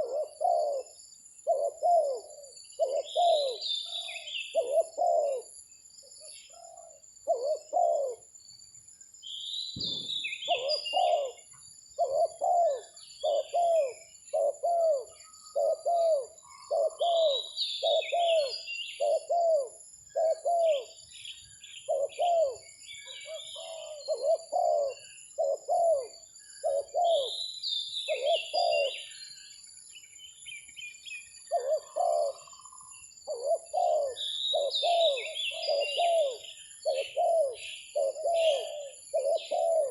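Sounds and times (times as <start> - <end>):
doves cooing: 0.0 - 5.6, 6.2 - 8.3, 9.8 - 21.0, 21.8 - 27.4, 28.1 - 29.2, 31.4 - 39.9
small birds chirping: 0.0 - 39.9
dull thump: 9.8 - 10.3.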